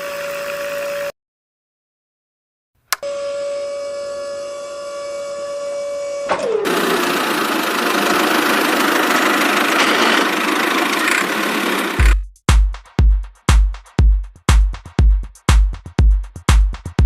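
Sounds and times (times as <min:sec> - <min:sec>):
small electric motor whining: 0:00.0 - 0:01.1, 0:03.0 - 0:12.2.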